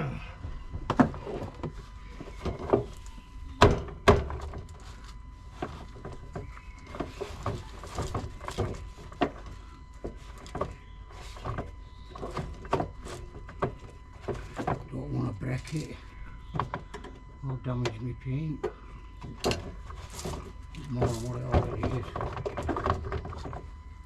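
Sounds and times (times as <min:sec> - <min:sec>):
plastic trim thunks: 0:03.6 - 0:04.8.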